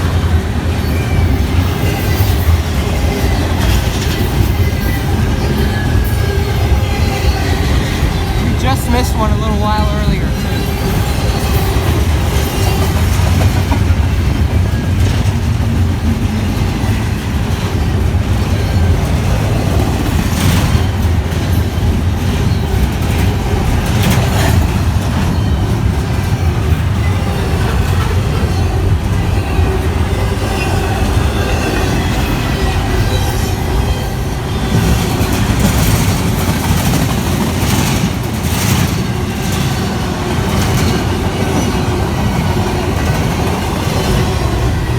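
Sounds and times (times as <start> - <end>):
train wheels rumbling on rails: 0.0 - 44.9.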